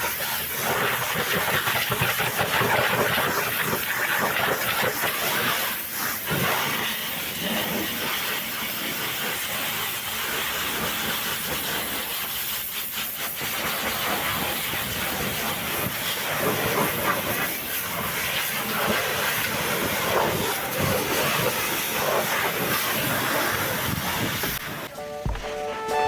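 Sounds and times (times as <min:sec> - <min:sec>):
high-pressure water jet hissing: 0:00.0 - 0:25.3
music: 0:24.8 - 0:26.0.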